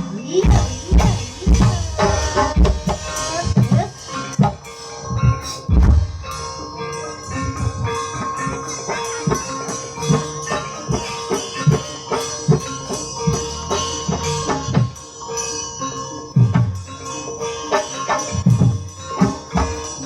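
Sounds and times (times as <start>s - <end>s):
drum strokes: 0.0s - 15.2s, 16.4s - 17.0s
struck keyed instruments ringing: 0.0s - 20.0s.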